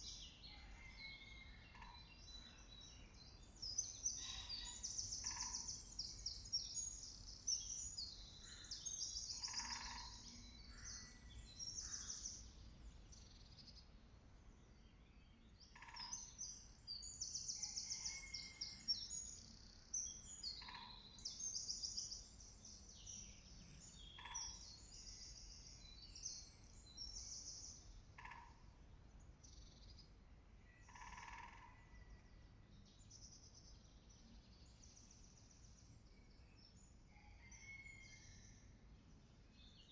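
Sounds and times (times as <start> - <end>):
songbirds trilling: 0.0 - 13.4, 30.8 - 32.2.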